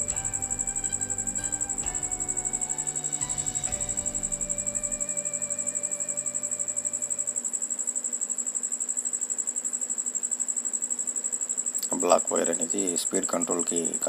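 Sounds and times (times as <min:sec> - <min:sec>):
background music notes: 0:00.0 - 0:07.5
cricket chirping: 0:00.0 - 0:14.0.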